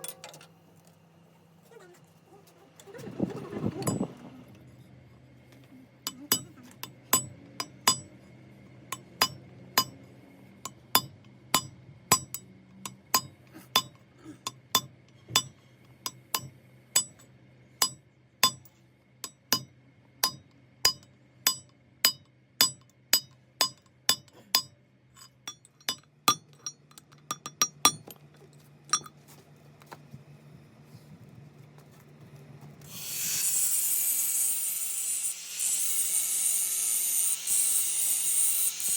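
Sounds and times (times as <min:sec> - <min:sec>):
hammer striking metal: 0:06.1 - 0:08.1, 0:08.9 - 0:10.0, 0:10.7 - 0:28.2, 0:28.9 - 0:29.2.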